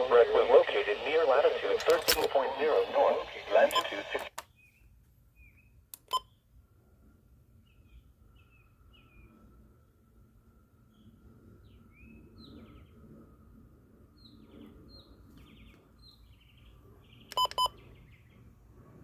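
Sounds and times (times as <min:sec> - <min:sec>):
birds chirping: 0:00.0 - 0:04.3
faint steady hum: 0:00.0 - 0:04.3.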